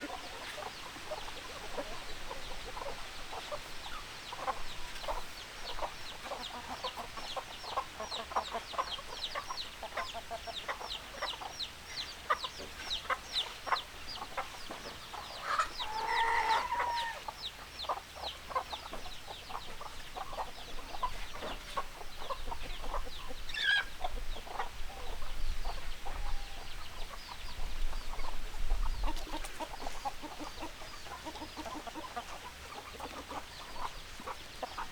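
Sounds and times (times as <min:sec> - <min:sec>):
chickens clucking: 0:00.0 - 0:34.9
drawn-out chicken call: 0:12.2 - 0:34.9.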